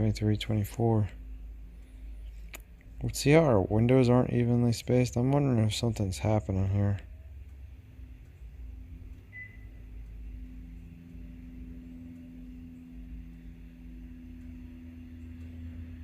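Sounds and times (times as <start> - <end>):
steady low hum: 0.0 - 16.0
faint high chirp: 9.3 - 9.8.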